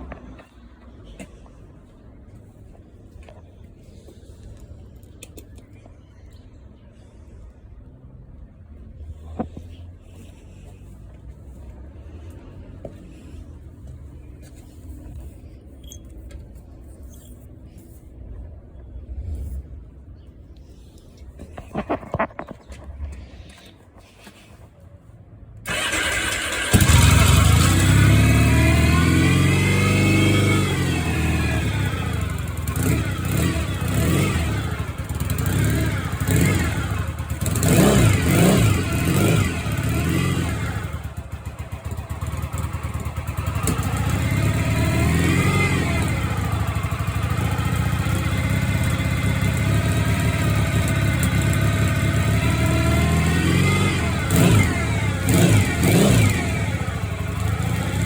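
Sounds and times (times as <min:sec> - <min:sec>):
motorcycle engine revving: 0:25.7 - 0:58.0.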